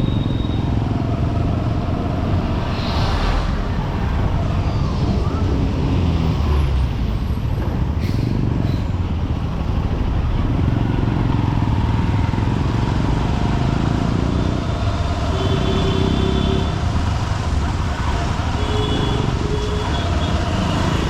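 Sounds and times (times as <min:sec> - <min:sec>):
brief steady tone: 0:00.0 - 0:00.7
road traffic: 0:00.0 - 0:21.0.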